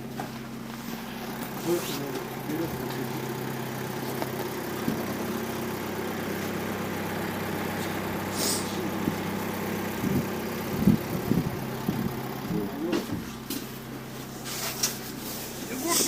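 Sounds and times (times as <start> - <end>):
vehicle engine idling: 0.0 - 16.0
brief hiss: 8.4 - 8.7.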